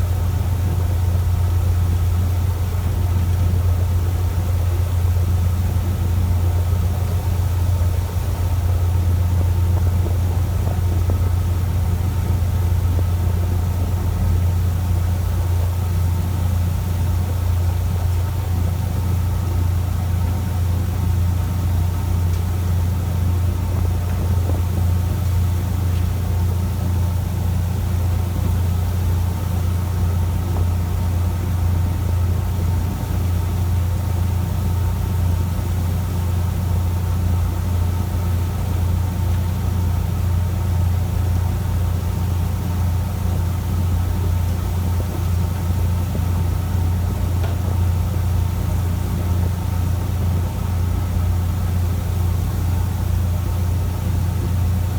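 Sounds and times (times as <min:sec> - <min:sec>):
boat engine droning: 0:00.0 - 0:54.9.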